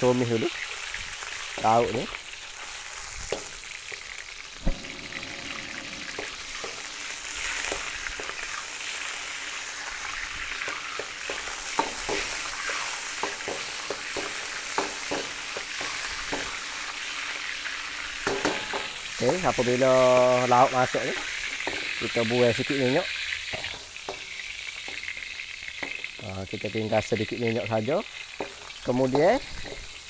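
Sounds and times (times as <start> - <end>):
seafood sizzling in hot oil: 0.0 - 30.0
metal ladle scraping wok: 4.6 - 9.1.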